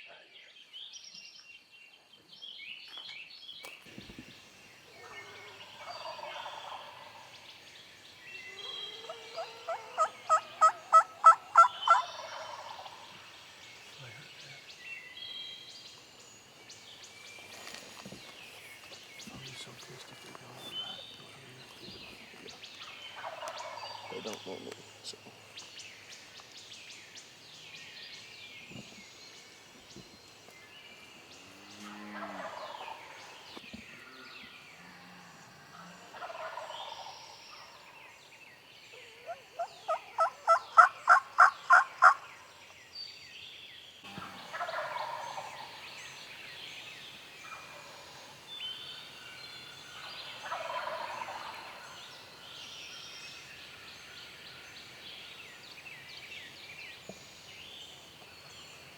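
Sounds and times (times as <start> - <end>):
songbirds chirping: 0.0 - 58.9
turkey gobbling: 5.0 - 7.3, 9.0 - 13.3, 23.1 - 24.4, 32.2 - 33.1, 36.1 - 37.8, 39.2 - 42.2, 44.2 - 45.8, 47.4 - 48.3, 50.0 - 51.9
turkey yelps: 9.0 - 12.7, 39.1 - 42.2.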